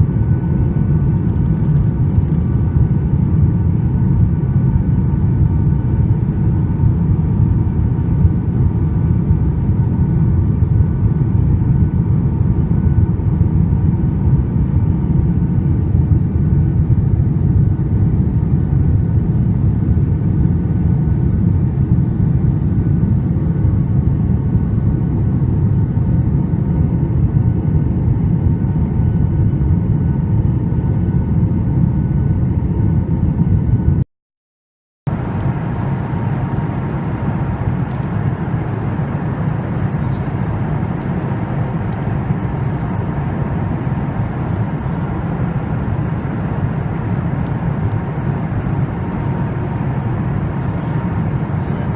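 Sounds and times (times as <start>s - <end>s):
airliner cabin roar: 0.0s - 34.0s, 35.1s - 51.9s
faint steady hum: 35.1s - 51.9s.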